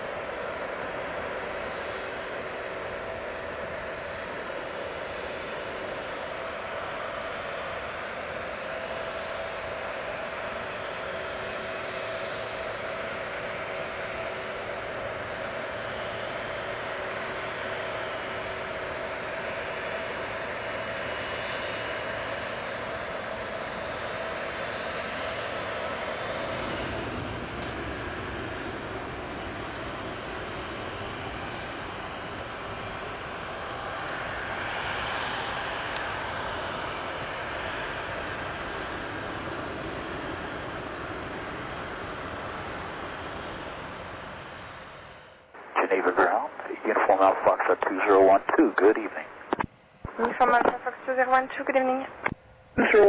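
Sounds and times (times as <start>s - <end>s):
jet engines idling: 0.0s - 53.0s.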